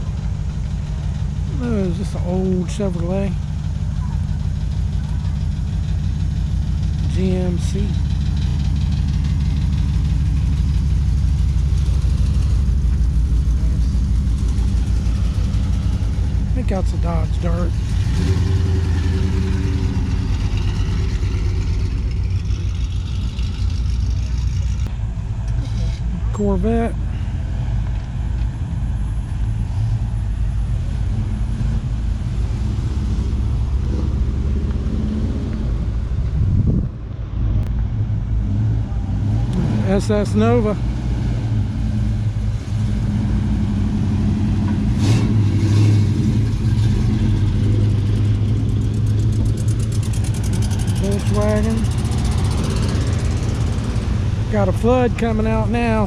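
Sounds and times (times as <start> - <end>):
cars driving slowly past: 0.0 - 56.0
truck engine deep rumble: 0.0 - 56.0.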